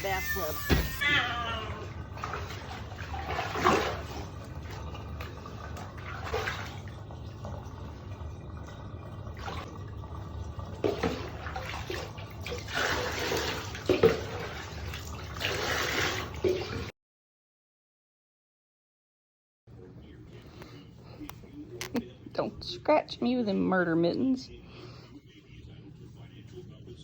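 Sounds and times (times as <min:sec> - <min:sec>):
water running in a bathtub: 0:00.0 - 0:16.9
loud splashes and knocks: 0:02.2 - 0:04.8.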